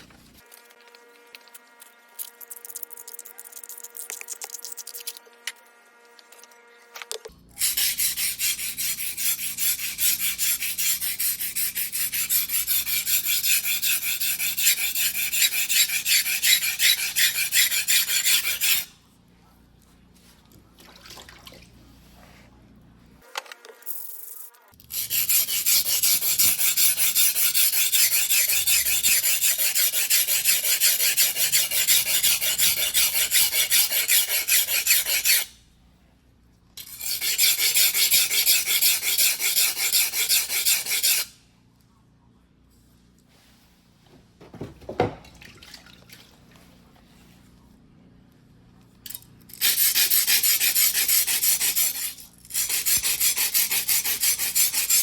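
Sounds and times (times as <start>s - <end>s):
knife scraping on whetstone: 7.6s - 18.9s, 24.9s - 35.5s, 36.8s - 41.3s, 49.6s - 55.0s.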